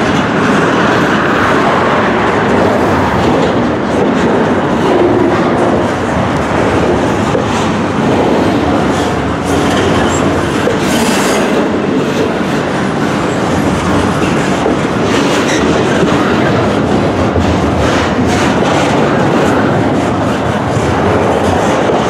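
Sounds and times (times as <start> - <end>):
freight train rolling past: 0.0 - 22.0
steel wheels clacking on rails: 0.0 - 22.0.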